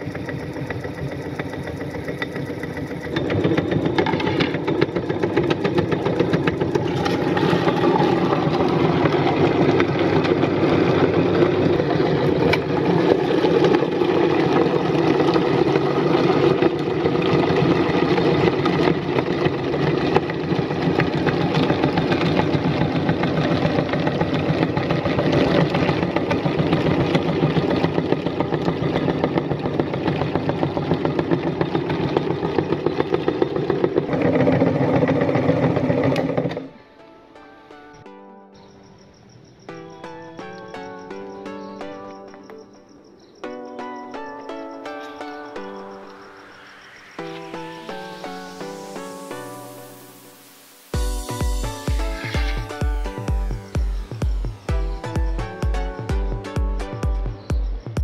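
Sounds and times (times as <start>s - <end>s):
electric meat grinder grinding fish: 0.0s - 36.8s, 47.3s - 56.1s.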